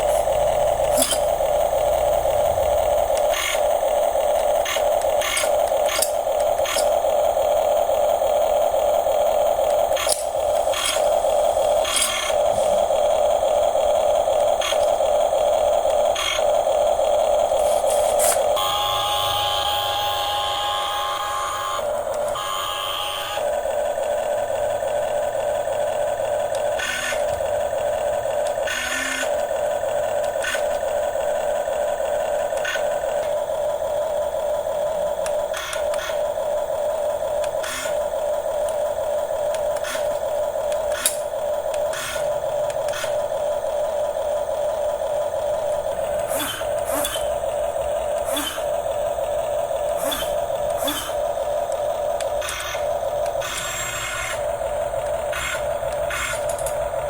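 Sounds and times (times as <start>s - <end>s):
small electric motor whining: 0.0s - 57.0s
clicks and clatters of moving parts: 0.9s - 1.4s, 4.3s - 7.0s, 11.8s - 12.8s, 39.5s - 43.2s, 55.0s - 56.9s.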